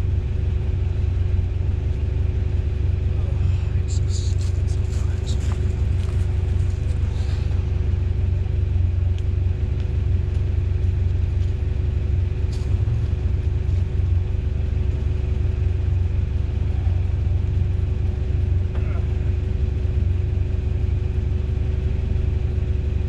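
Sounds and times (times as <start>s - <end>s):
truck engine low rumble: 0.0s - 23.0s.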